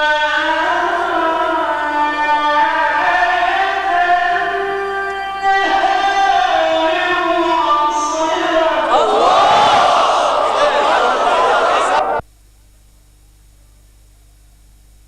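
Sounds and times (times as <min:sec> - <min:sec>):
man chanting recitation: 0:00.0 - 0:09.1.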